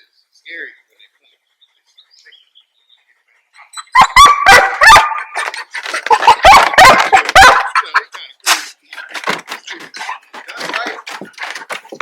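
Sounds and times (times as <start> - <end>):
dog barking and yelping: 3.6 - 8.1.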